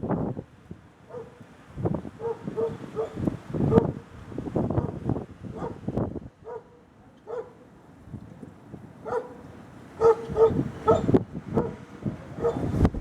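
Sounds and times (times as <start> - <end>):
wind rumbling on microphone: 0.0 - 6.6, 8.0 - 13.0
dog barking: 1.1 - 1.4, 2.2 - 3.9, 5.6 - 5.8, 6.4 - 7.6, 9.0 - 9.4, 10.0 - 11.8, 12.4 - 12.7.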